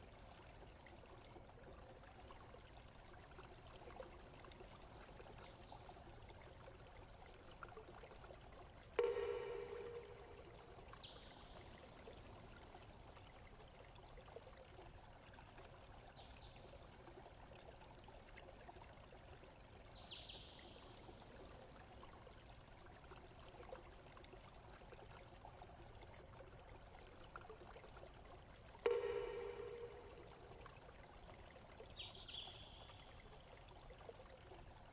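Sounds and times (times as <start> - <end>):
running water trickle: 0.0 - 34.9
loud ringing tone: 9.0 - 10.6, 28.9 - 30.4.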